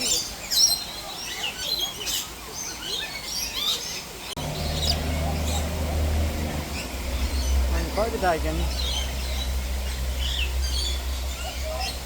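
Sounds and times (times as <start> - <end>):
parrots chirping and squawking: 0.0 - 12.0
steady low hum: 4.4 - 12.0.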